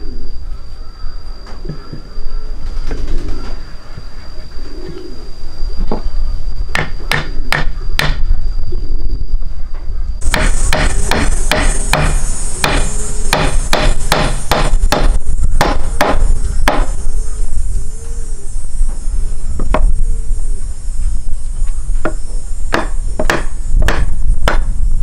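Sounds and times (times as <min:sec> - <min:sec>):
rapid sharp knocks: 0:10.3 - 0:16.9.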